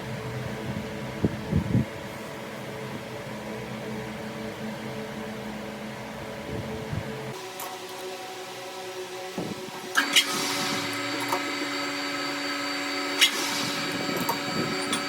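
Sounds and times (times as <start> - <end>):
electric motor humming: 7.4 - 15.0.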